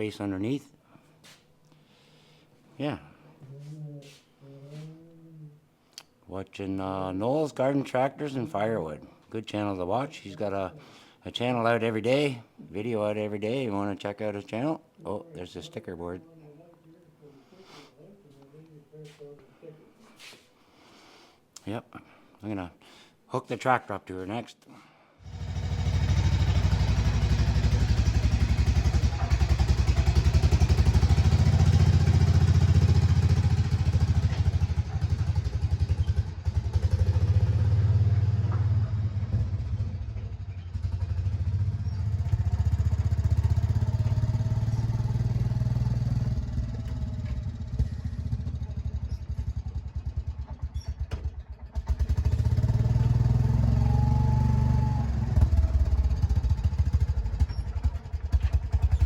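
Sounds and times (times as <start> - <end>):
small tractor engine running: 25.3 - 59.0.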